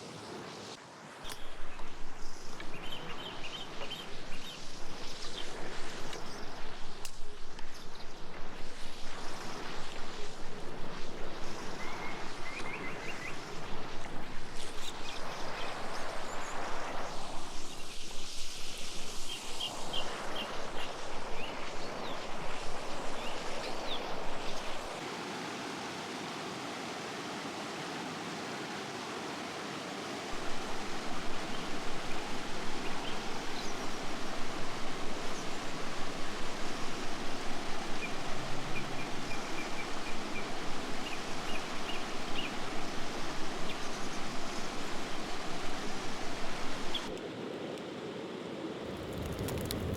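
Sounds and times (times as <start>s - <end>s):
stream flowing: 18.9s - 49.9s.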